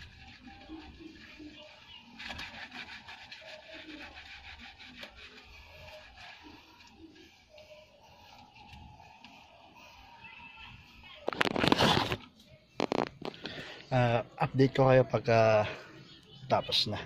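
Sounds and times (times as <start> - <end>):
hands scrubbing with soap: 0.0 - 7.3.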